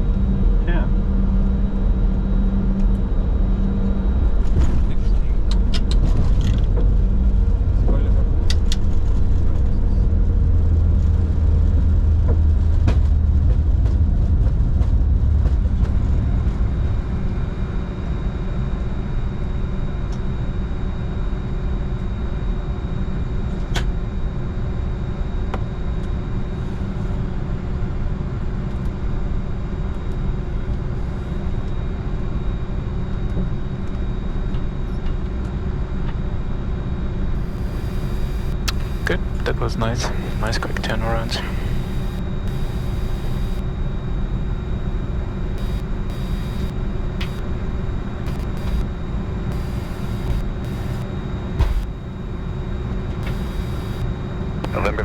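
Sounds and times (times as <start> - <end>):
jet cockpit rumble and hum: 0.0 - 55.0.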